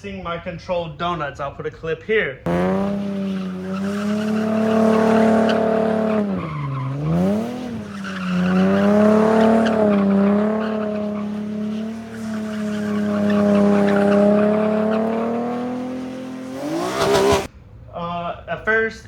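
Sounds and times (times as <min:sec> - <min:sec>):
car engine at high revs: 0:02.5 - 0:17.5
tyres squealing: 0:02.5 - 0:17.5.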